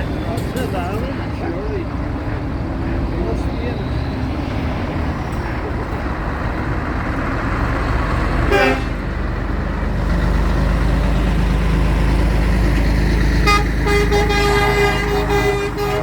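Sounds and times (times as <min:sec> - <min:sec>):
heavy vehicle engines running: 0:00.0 - 0:16.0
vehicle horn toot: 0:08.5 - 0:09.0, 0:13.4 - 0:16.0.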